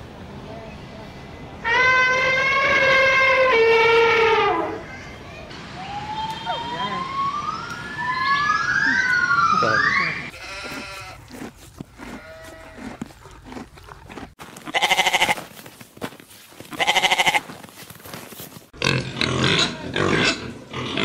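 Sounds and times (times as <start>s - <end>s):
livestock bleating: 10.3s - 11.2s, 14.7s - 15.5s, 16.7s - 17.5s.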